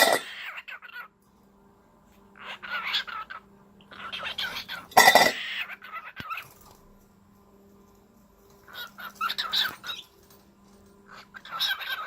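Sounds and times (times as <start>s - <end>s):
cockatiel chirping: 2.4s - 6.5s, 8.6s - 10.1s, 11.1s - 12.0s.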